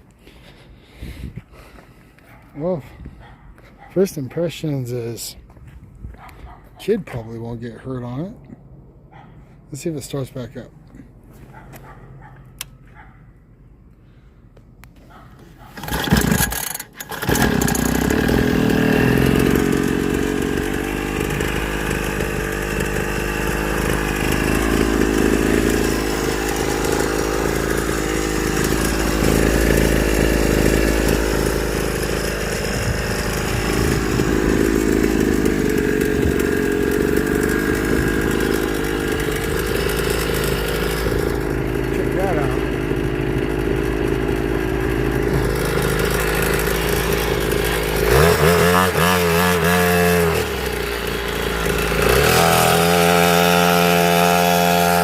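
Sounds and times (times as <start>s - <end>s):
two-stroke engine starting and running: 15.6s - 55.0s.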